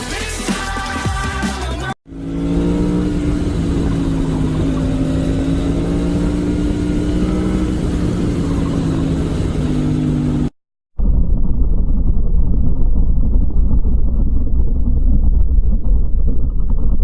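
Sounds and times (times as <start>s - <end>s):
music: 0.0s - 2.0s
vehicle engine running: 1.8s - 17.0s.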